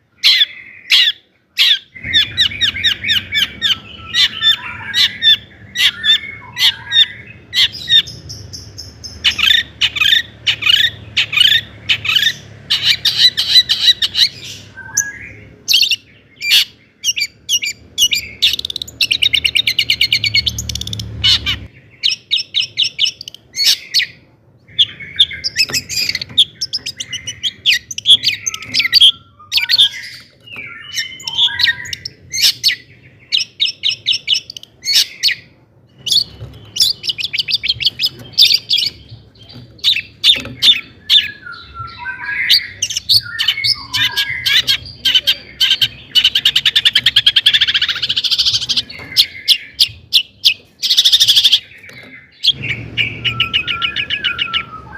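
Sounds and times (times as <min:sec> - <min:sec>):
shrike singing: 0:00.1 - 0:54.9.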